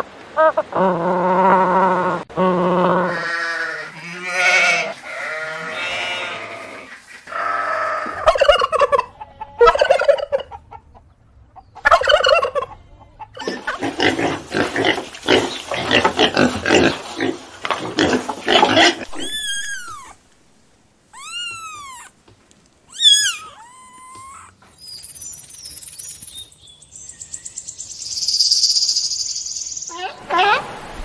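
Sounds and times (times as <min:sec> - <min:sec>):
high animal cries: 0:03.0 - 0:10.1, 0:18.0 - 0:20.2, 0:21.0 - 0:22.2, 0:22.9 - 0:24.7.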